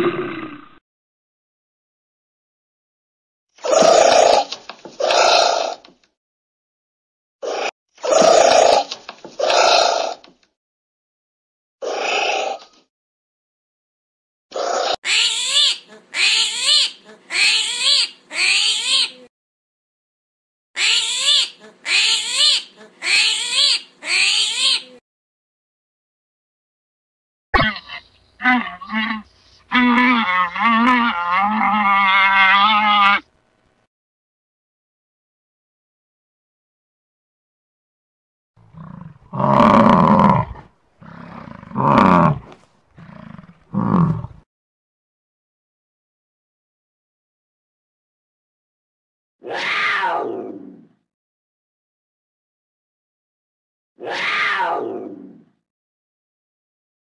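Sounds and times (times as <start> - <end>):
animal cries rising and falling: 14.6 - 19.3, 20.8 - 25.0, 27.6 - 33.2, 49.4 - 50.9, 54.0 - 55.4.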